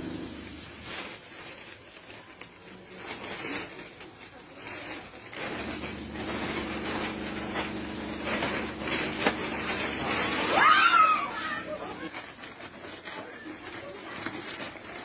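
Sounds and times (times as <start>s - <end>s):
faint rustling: 0.0s - 15.0s
engine humming: 5.4s - 12.1s.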